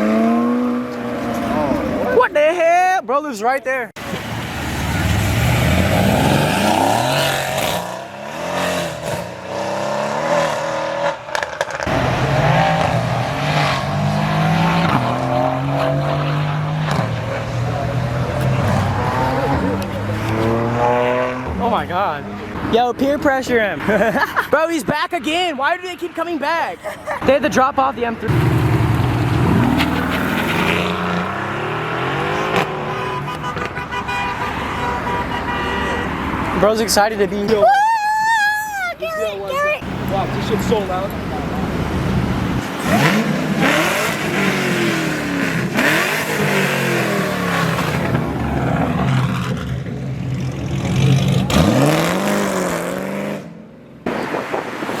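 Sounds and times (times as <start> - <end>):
car engines accelerating hard: 0.0 - 2.2, 4.0 - 22.8, 28.2 - 33.8, 39.3 - 55.0.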